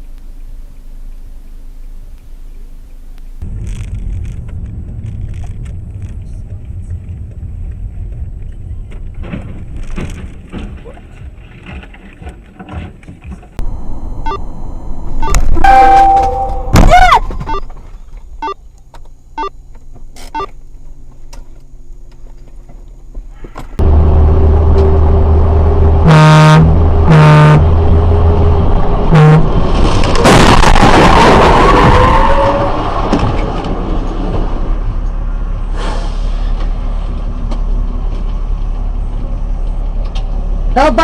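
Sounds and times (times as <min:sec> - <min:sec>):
road and engine noise: 0:00.0 - 0:41.0
car horn: 0:15.2 - 0:17.3, 0:26.0 - 0:27.8, 0:29.1 - 0:29.5.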